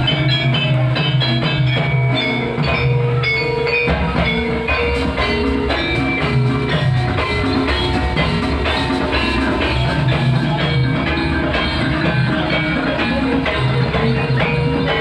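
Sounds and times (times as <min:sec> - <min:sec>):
drums: 0:00.0 - 0:15.0
metal-keyed instruments ringing: 0:00.0 - 0:15.0.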